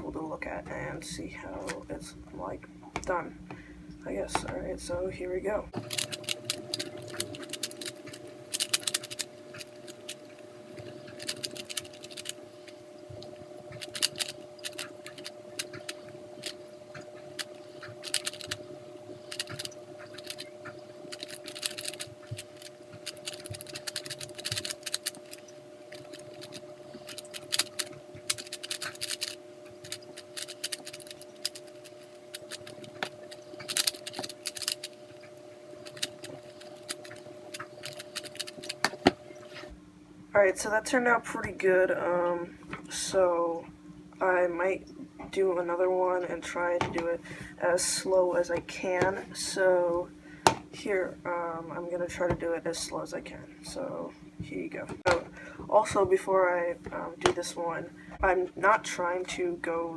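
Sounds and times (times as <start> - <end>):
faint steady hum: 0.0 - 59.9
puzzle cube clicking: 5.8 - 12.4, 13.8 - 16.6, 17.4 - 18.6, 19.3 - 20.5, 21.1 - 35.0, 35.8 - 39.2.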